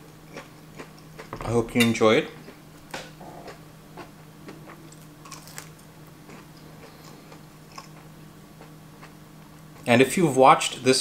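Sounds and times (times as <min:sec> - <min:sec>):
chewing with wet clicks: 0:00.0 - 0:01.3, 0:03.5 - 0:09.9
faint low hum: 0:00.0 - 0:11.0.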